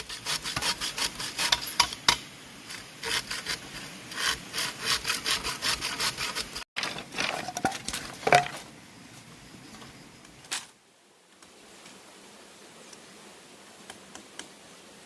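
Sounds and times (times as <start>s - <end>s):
hand saw cutting bamboo: 0.0s - 6.7s.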